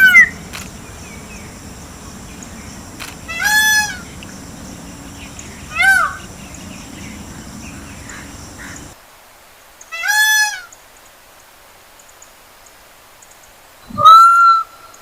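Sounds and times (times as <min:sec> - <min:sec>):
peacock calling: 0:00.0 - 0:09.0.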